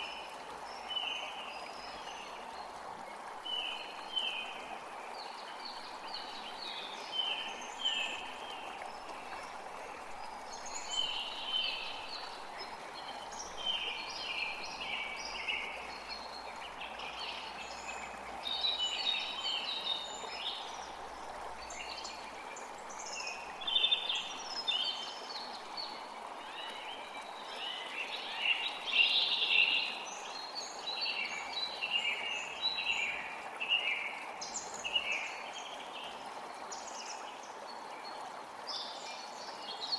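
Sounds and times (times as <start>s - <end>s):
creek water running: 0.0s - 39.9s
songbirds chirping: 0.0s - 39.9s.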